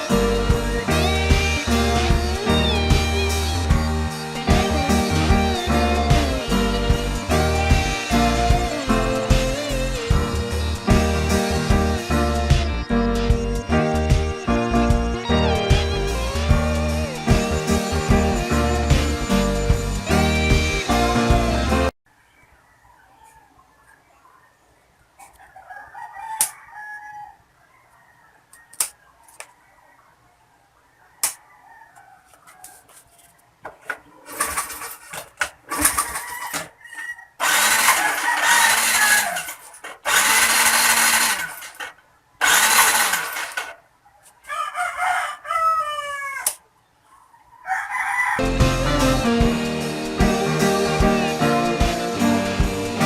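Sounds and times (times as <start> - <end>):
rooster crowing: 25.4 - 29.0, 30.8 - 33.2, 35.7 - 41.8, 44.4 - 49.3
motorcycle electric starter cranking: 37.4 - 43.8.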